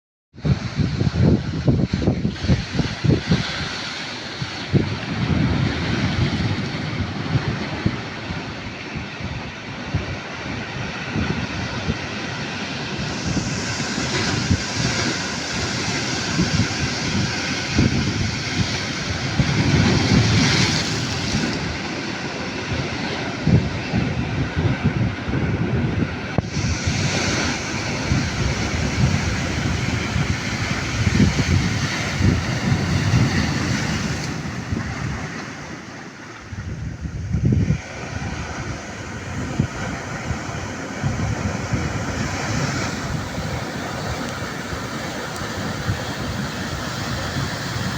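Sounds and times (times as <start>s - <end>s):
sea waves breaking on shore: 0.4s - 47.9s
wind buffeting microphone: 0.4s - 47.9s.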